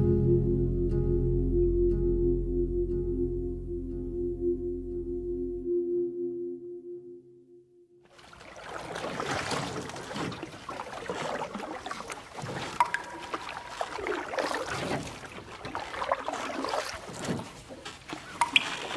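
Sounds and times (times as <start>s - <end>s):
water splashing and lapping: 8.1s - 18.9s.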